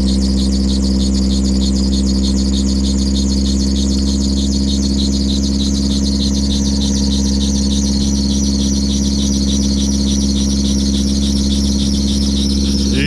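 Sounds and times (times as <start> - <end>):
car engine idling: 10.0 - 13.0.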